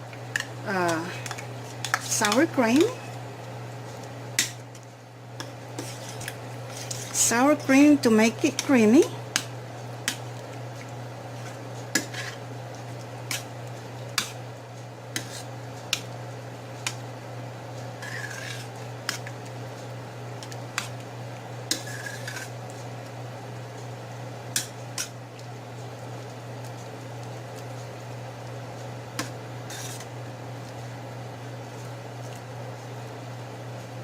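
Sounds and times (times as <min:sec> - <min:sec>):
steady low hum: 0:00.0 - 0:34.0
spoon scraping a pot: 0:05.8 - 0:07.9, 0:11.4 - 0:12.4, 0:15.1 - 0:15.5, 0:18.0 - 0:19.3, 0:21.7 - 0:22.6, 0:29.2 - 0:30.1.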